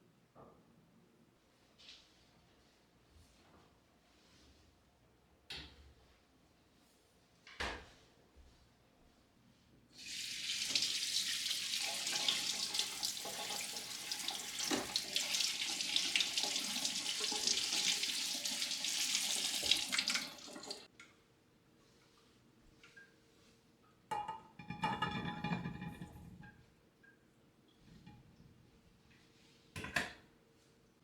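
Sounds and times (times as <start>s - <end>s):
tap water running into sink: 10.0s - 20.9s.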